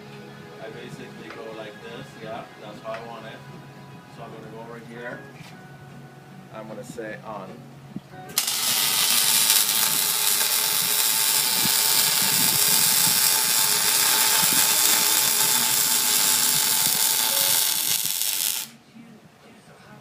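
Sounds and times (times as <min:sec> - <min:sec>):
welding arc crackling and hissing: 0:08.3 - 0:18.8.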